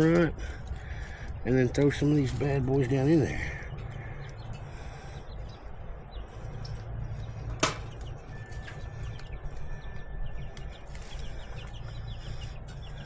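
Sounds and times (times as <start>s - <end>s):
steady low rumble: 0.0s - 13.0s
faint bird chirps: 3.5s - 13.0s.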